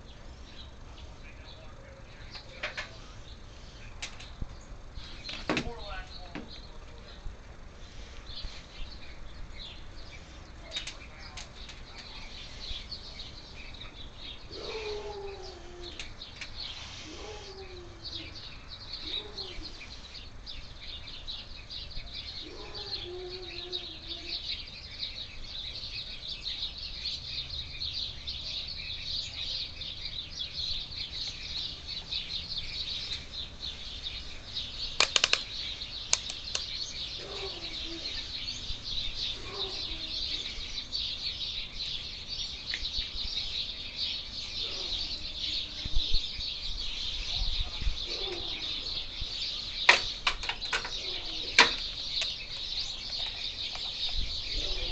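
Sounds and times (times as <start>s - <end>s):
lower falling bird calls: 0.0s - 54.9s
small birds chirping: 0.0s - 54.9s
sharp clicks: 10.7s - 12.1s, 35.0s - 36.8s.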